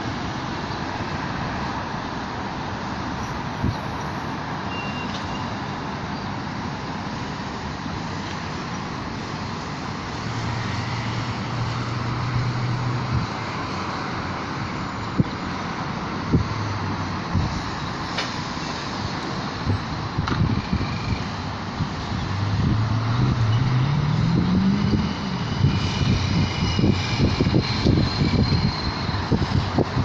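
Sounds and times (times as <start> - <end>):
road traffic noise: 0.0 - 30.0
vehicle engine hum: 0.0 - 30.0.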